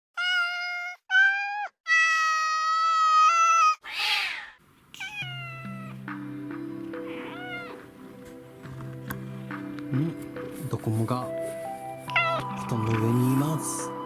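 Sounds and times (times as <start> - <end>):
cat meowing: 0.1 - 6.1, 7.0 - 8.0, 12.1 - 12.7
soft background music: 5.1 - 14.0.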